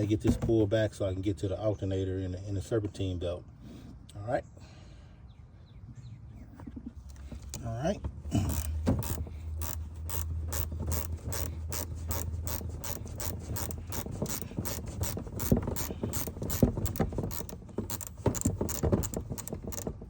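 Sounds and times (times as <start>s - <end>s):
ratchet wrench clicking: 8.4s - 19.9s.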